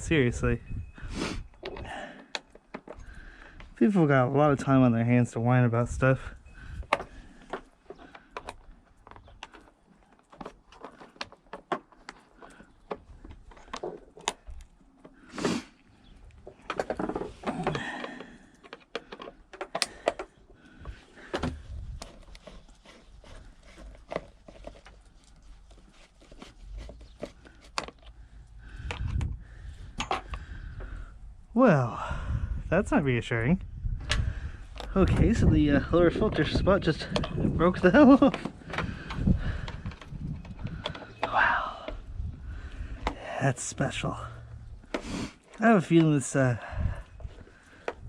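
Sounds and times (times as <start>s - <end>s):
tools clicking and knocking: 16.5s - 22.6s, 30.0s - 30.4s
scraping and rustling: 20.9s - 28.2s.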